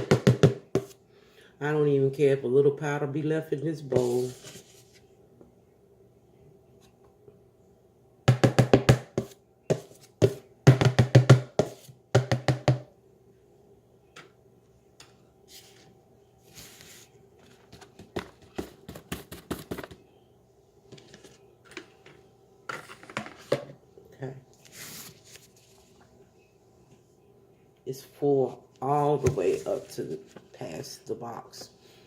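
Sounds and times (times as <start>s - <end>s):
rapid knocks tapping a bowl: 0.0s - 0.9s, 8.3s - 12.9s.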